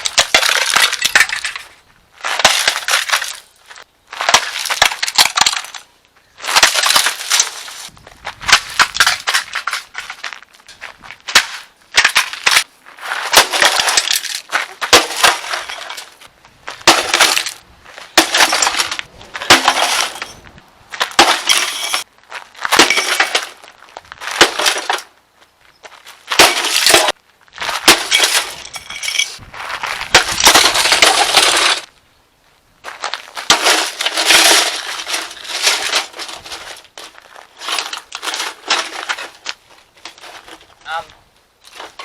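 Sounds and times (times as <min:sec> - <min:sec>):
metal and debris clattering: 0:00.0 - 0:03.4, 0:06.5 - 0:07.9, 0:08.5 - 0:12.7, 0:13.3 - 0:22.1, 0:22.7 - 0:23.6, 0:24.3 - 0:25.1, 0:26.3 - 0:29.4, 0:30.1 - 0:31.9, 0:33.4 - 0:40.8
metal crashing blows: 0:13.3 - 0:16.2, 0:16.8 - 0:22.1, 0:22.7 - 0:23.6, 0:26.3 - 0:29.4, 0:30.0 - 0:31.9.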